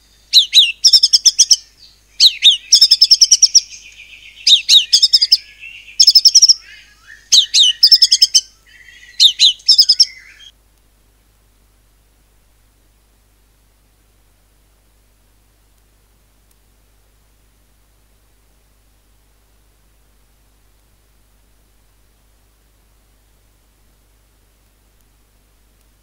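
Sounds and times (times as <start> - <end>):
songbird singing whistled phrases: 0.0 - 10.5.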